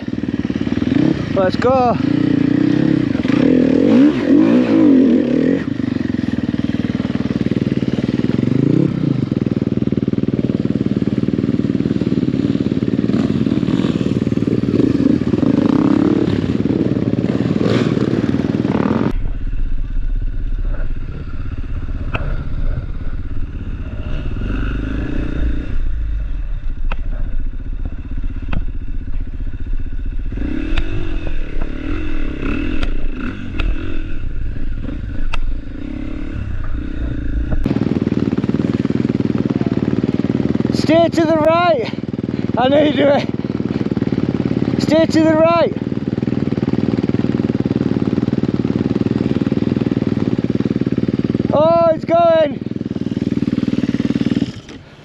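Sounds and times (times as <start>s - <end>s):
dirt bike engine revving: 0.0s - 55.0s
heavy low rumble: 12.1s - 44.7s.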